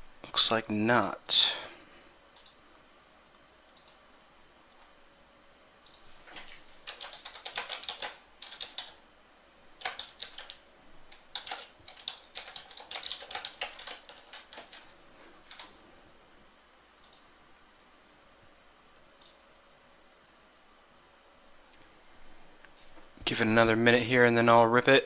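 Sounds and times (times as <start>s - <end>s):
typing on computer keyboard: 5.9s - 9.0s, 9.8s - 15.8s.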